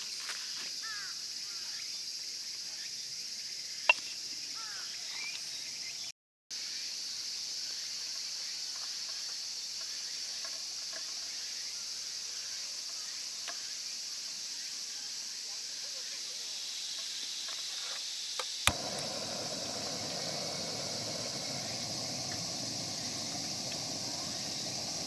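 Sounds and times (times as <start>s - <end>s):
shrill insect chorus: 0.6s - 10.3s, 18.8s - 25.0s
sharp click: 18.4s - 25.0s.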